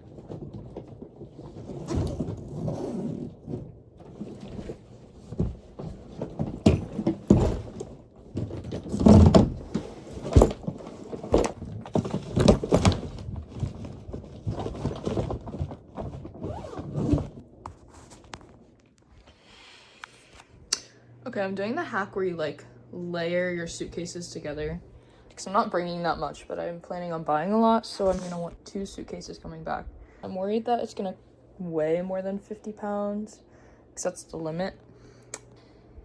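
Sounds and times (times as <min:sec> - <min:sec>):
suitcase being handled and packed: 0:00.0 - 0:18.6.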